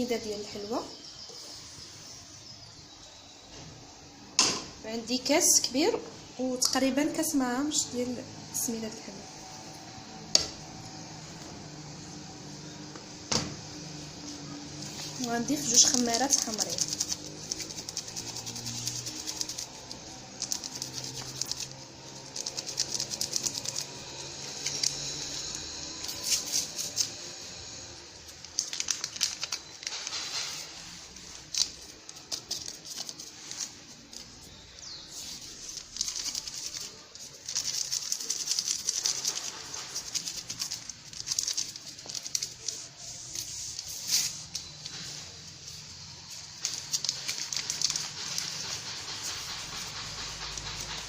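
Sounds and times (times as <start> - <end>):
paper sachets rustling and crinkling: 14.4 - 51.0.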